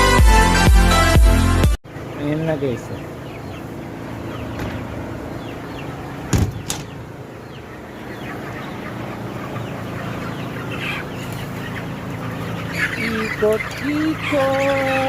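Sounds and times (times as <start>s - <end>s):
chickens clucking and chirping: 1.9s - 15.0s
sharp knocks: 6.3s - 7.0s.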